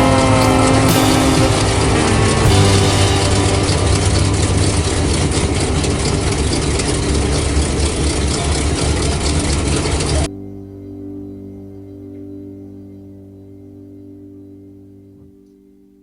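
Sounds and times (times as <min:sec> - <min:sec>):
vehicle engine rumbling: 0:00.0 - 0:10.3
soft sustained musical tones: 0:00.0 - 0:16.0.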